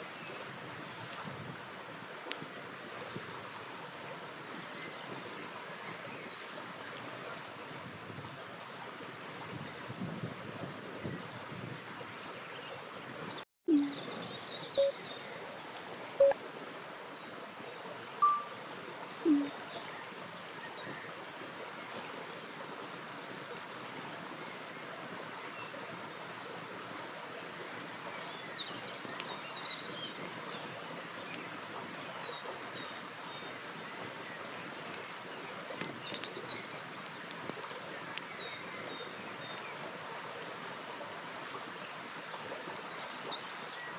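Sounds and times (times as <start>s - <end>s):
faint bird chirps: 13.7s - 14.2s, 14.8s - 15.0s, 18.2s - 18.5s, 19.3s - 19.6s.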